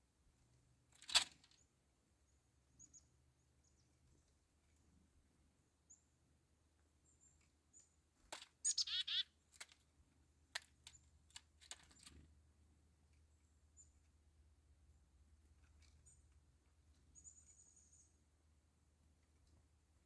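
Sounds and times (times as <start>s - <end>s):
bird harsh buzzy calls: 8.6s - 9.3s
faint high chirps: 8.6s - 9.3s, 17.1s - 18.3s.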